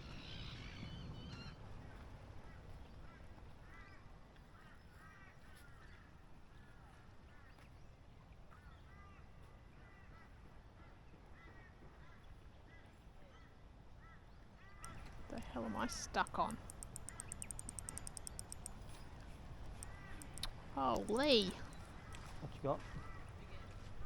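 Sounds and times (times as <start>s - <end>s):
faint birds calling: 0.0s - 6.7s, 14.0s - 24.0s.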